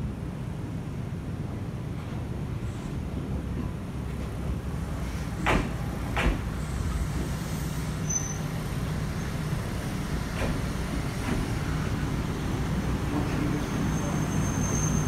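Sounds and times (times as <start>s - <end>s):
train running hum: 0.0s - 15.0s
high squeal: 8.0s - 8.5s, 13.6s - 15.0s
wheels clacking over rail joint: 10.3s - 11.6s.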